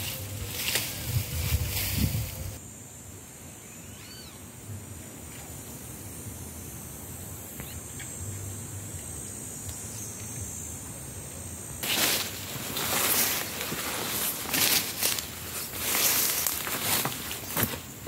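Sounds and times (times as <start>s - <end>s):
steady high hiss: 0.0s - 18.0s
bird call rising and falling: 3.6s - 4.4s
faint high chirps: 3.6s - 4.5s.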